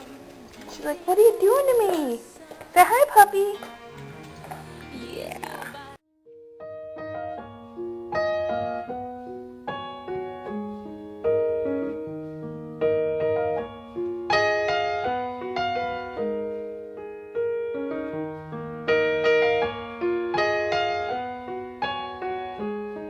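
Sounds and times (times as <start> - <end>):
solo piano playing slow chords: 5.9 - 23.0.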